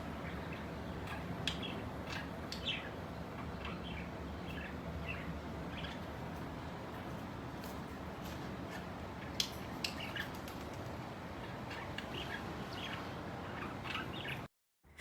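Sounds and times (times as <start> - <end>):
pet birds chirping and squawking: 0.0 - 14.5
steady background hiss: 0.0 - 14.5.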